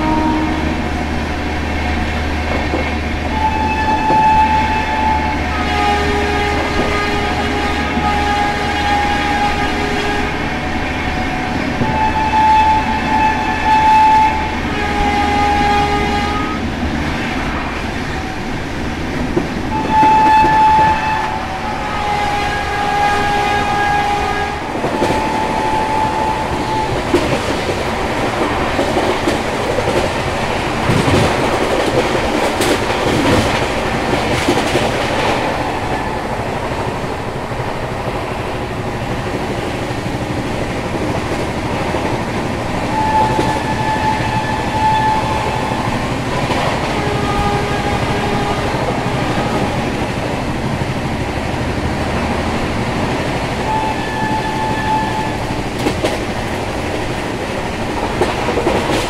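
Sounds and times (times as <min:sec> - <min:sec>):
train horn blasts: 0:00.0 - 0:02.0, 0:02.7 - 0:18.5, 0:19.7 - 0:27.3, 0:42.8 - 0:50.2, 0:53.6 - 0:55.9
rushing wind: 0:00.0 - 0:59.0
train wheels rattling on track: 0:00.0 - 0:59.0.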